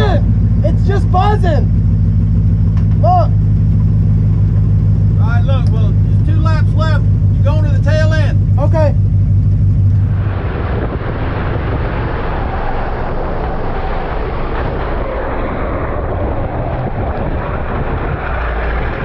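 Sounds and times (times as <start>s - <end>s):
race car engines: 0.0s - 19.0s.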